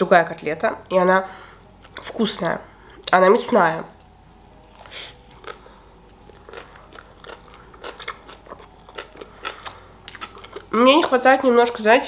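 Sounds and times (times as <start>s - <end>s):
person biting and chewing burger: 4.6s - 10.7s.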